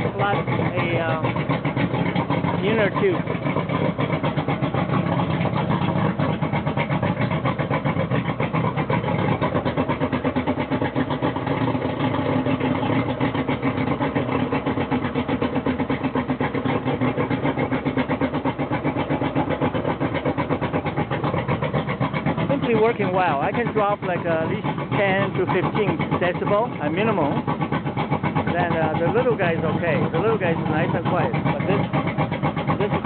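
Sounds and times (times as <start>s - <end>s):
outboard motor running: 0.0s - 33.0s.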